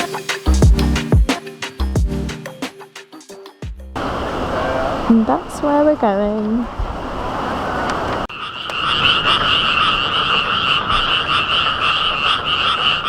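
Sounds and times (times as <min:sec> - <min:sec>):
chorus of frogs trilling: 0:07.7 - 0:13.0.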